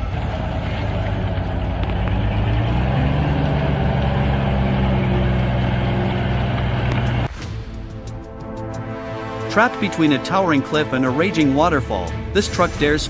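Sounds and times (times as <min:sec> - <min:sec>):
heavy truck engine under load: 0:00.0 - 0:07.3.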